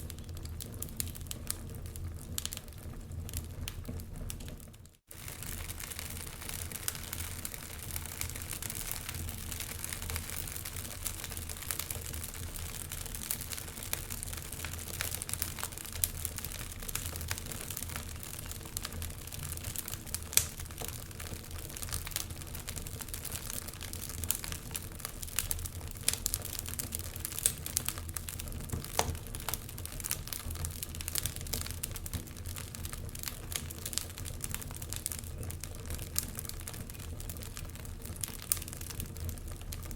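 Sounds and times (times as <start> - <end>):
logs crackling in fireplace: 0.0 - 39.9.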